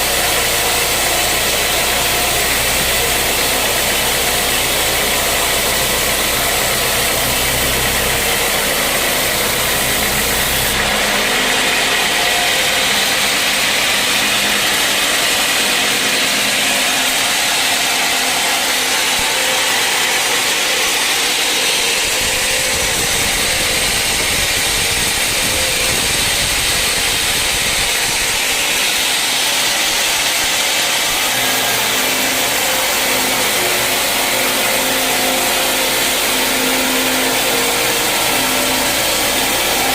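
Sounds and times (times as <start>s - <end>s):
low motor hum: 0.0s - 39.9s
sawmill machinery whirring: 0.0s - 39.9s.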